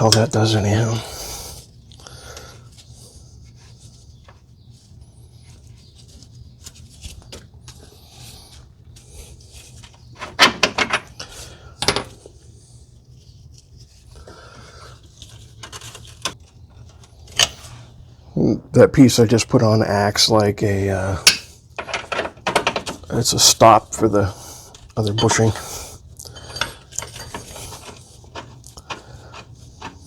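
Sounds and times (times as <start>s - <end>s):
low steady hum: 0.0s - 30.0s
metal tools clinking and scraping: 9.8s - 12.2s, 21.2s - 24.1s, 24.7s - 30.0s.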